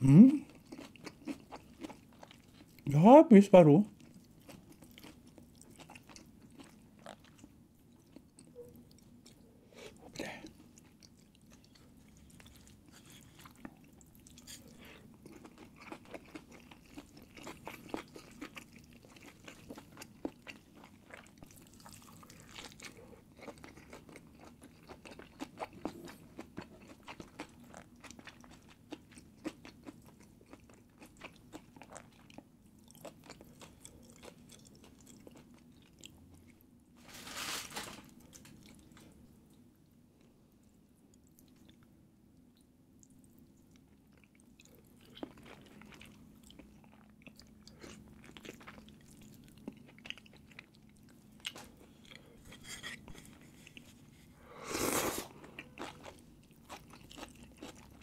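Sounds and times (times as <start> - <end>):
person chewing wetly: 0.4 - 2.9, 3.9 - 36.6, 41.1 - 54.1, 55.0 - 58.0.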